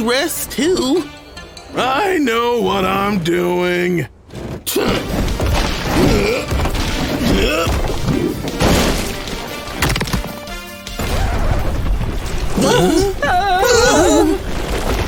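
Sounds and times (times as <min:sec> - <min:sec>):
background music: 0:00.0 - 0:03.2, 0:04.8 - 0:14.5
rocks crashing and rumbling: 0:04.3 - 0:15.0.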